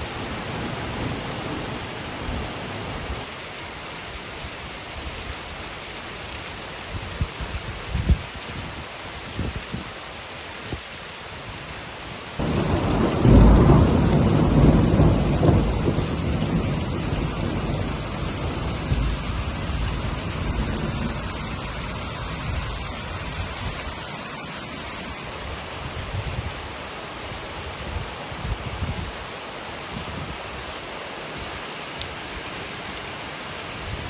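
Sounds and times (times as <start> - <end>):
heavy rain: 0.0 - 34.0
thunder rumbling: 12.4 - 23.9.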